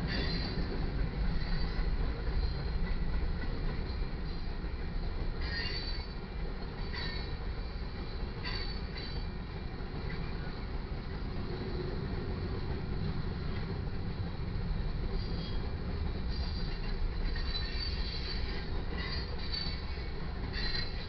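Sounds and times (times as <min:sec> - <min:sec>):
high wheel squeals: 0:00.0 - 0:00.6, 0:05.4 - 0:06.2, 0:16.3 - 0:21.0
train wheels rumbling on rail: 0:00.0 - 0:21.0.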